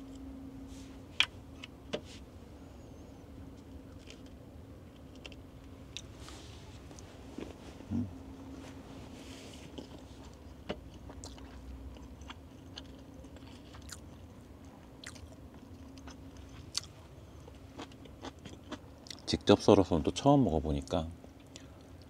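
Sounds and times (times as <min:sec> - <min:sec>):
faint steady hum: 0:00.0 - 0:22.0
person chewing food: 0:09.6 - 0:19.3.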